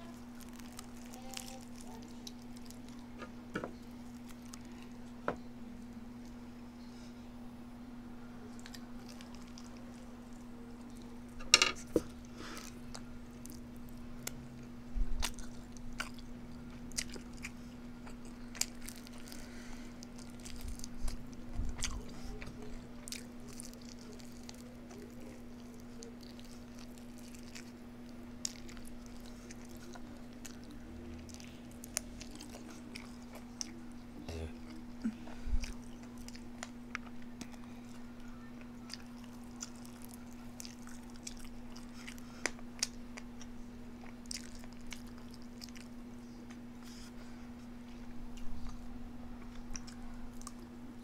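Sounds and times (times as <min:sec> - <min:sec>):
person chewing and crunching: 0:00.0 - 0:05.2, 0:08.4 - 0:14.4, 0:15.1 - 0:50.8
steady low hum: 0:00.0 - 0:51.0.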